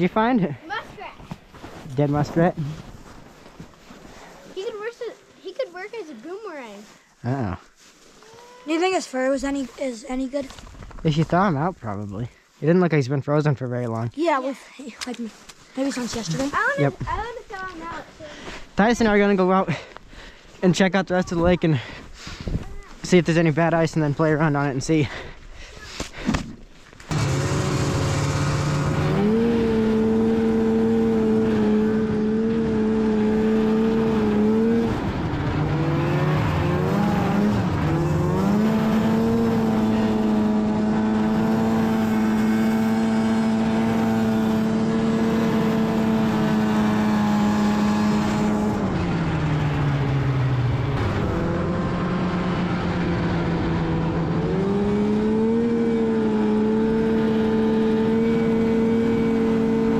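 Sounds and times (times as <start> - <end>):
snowmobile engine running: 27.1 - 59.9.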